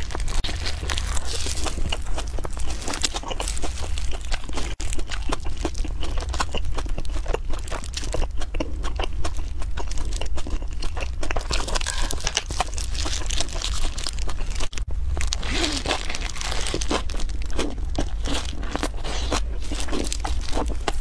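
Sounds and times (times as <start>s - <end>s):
low hum: 0.0s - 6.2s, 11.3s - 21.0s
plastic gloves crinkling: 0.0s - 8.1s, 11.3s - 21.0s
chewing crispy food: 0.0s - 21.0s.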